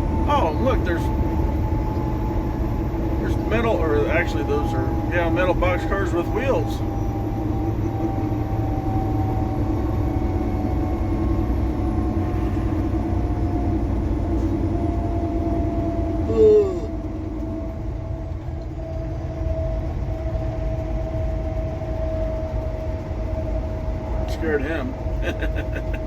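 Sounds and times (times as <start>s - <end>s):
faint steady whine: 0.0s - 26.0s
truck cab rumble: 0.0s - 26.0s.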